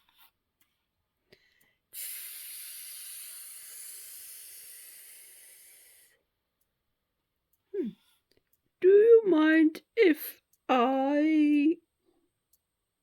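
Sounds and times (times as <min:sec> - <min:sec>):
person hissing with mouth: 0:02.0 - 0:06.2.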